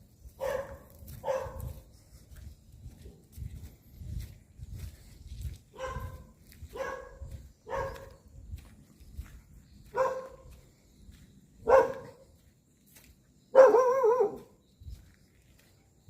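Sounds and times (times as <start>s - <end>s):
dog barking: 0.4s - 1.8s, 5.7s - 8.2s, 9.9s - 10.5s, 11.6s - 12.3s, 13.5s - 14.6s.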